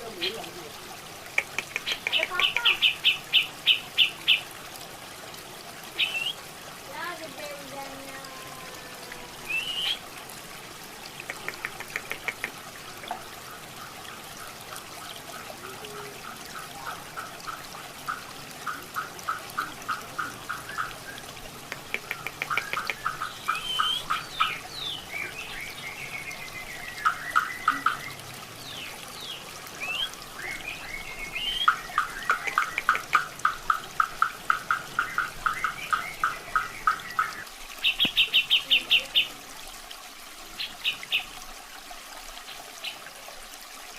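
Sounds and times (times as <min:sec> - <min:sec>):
water trickling: 0:00.0 - 0:43.9
bird whistles: 0:06.0 - 0:06.4, 0:09.5 - 0:10.0
bird singing clipped notes: 0:35.0 - 0:38.7.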